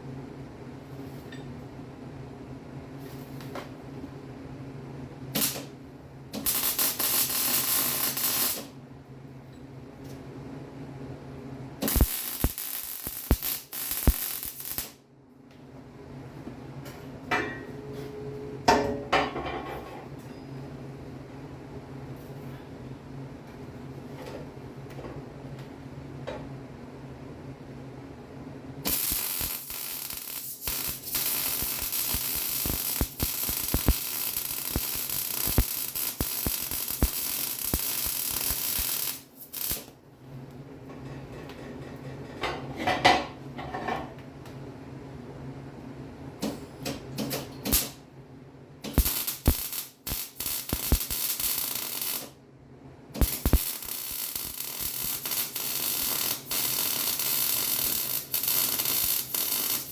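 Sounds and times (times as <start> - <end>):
arc welding crackling: 5.4 - 5.7, 6.4 - 8.7, 11.8 - 15.0, 28.8 - 39.9, 48.8 - 52.4, 53.2 - 59.9.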